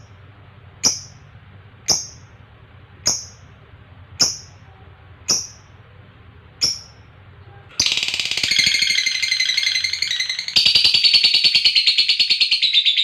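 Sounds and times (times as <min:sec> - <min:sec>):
lovebird chirping and trilling: 0:00.8 - 0:01.2, 0:04.2 - 0:04.6, 0:05.3 - 0:05.7, 0:06.6 - 0:07.1, 0:07.8 - 0:13.0.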